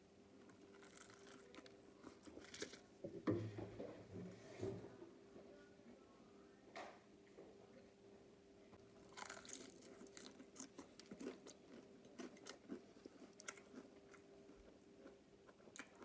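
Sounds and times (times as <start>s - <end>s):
crispy food crunching: 0.4s - 2.9s, 8.9s - 16.0s.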